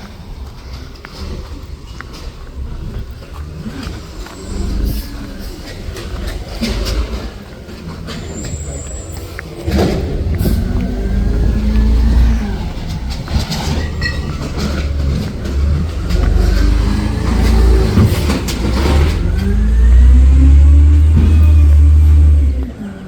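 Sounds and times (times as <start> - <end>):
garbage truck engine revving: 0.0 - 23.0.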